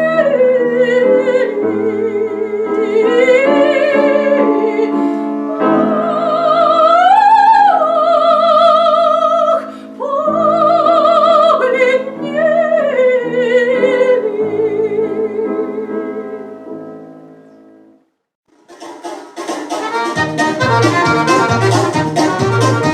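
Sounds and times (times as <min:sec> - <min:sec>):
opera singing in a high voice: 0:00.0 - 0:16.2
instrumental accompaniment: 0:18.5 - 0:22.9.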